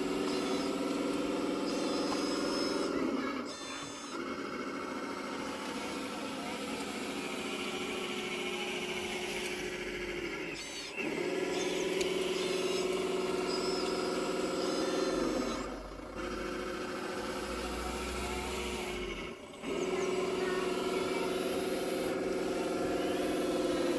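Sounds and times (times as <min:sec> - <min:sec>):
hydraulic pump and motors whining: 0:00.0 - 0:23.9
faint high squeaks from gear: 0:00.1 - 0:04.1, 0:10.3 - 0:15.8.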